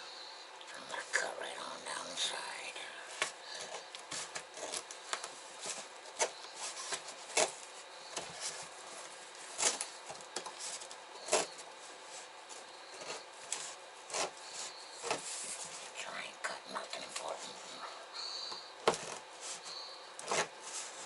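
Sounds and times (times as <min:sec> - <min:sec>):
scissors cutting cardboard: 0:03.6 - 0:08.7, 0:09.4 - 0:11.7, 0:12.6 - 0:15.7, 0:18.8 - 0:19.6, 0:20.2 - 0:21.0.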